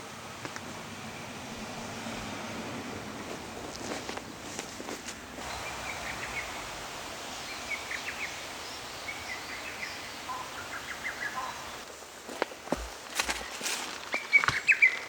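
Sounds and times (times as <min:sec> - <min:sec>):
steady outdoor hiss: 0:00.0 - 0:15.0
songbird chirping: 0:01.0 - 0:15.0.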